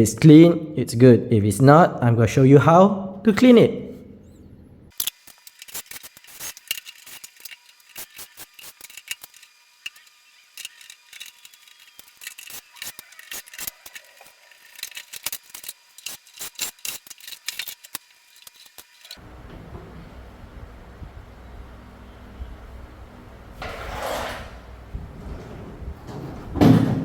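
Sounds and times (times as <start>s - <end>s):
tools clicking and scraping plastic: 4.9s - 19.2s.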